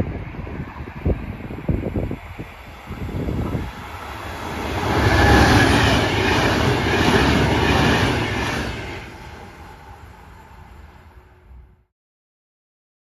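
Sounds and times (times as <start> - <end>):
electric train passing: 0.0 - 11.8.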